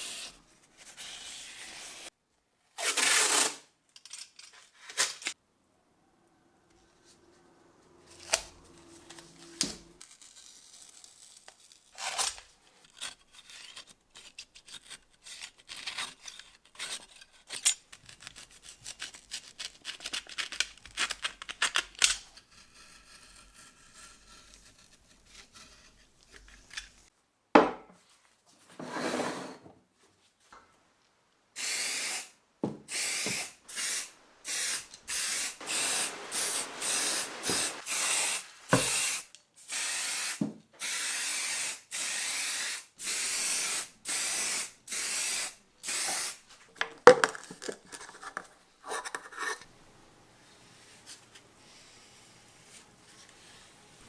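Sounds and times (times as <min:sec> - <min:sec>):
hissing spray bursts: 0:31.6 - 0:46.4.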